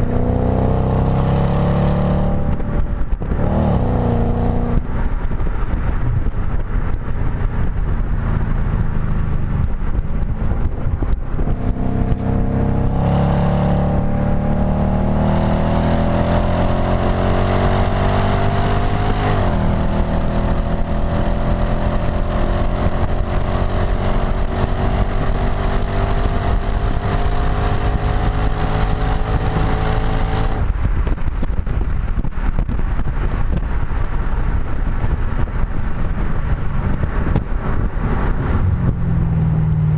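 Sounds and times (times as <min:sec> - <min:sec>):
car engine accelerating: 0:00.0 - 0:31.5, 0:32.3 - 0:39.9
wind rush over microphone: 0:00.0 - 0:39.9.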